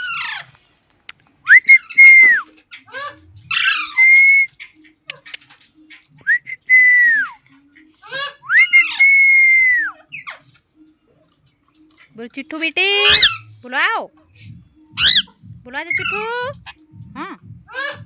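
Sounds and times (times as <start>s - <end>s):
parrot whistling: 1.5s - 5.4s, 6.3s - 7.4s, 8.0s - 10.4s, 12.8s - 13.6s, 15.0s - 16.8s
parrot harsh chattering: 8.0s - 9.0s, 12.9s - 13.5s, 15.0s - 15.3s, 15.9s - 16.8s, 17.7s - 18.0s.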